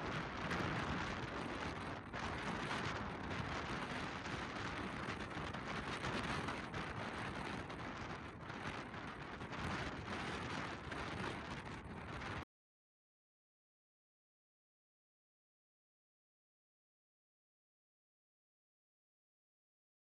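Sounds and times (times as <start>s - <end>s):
steady rain: 0.0s - 12.4s.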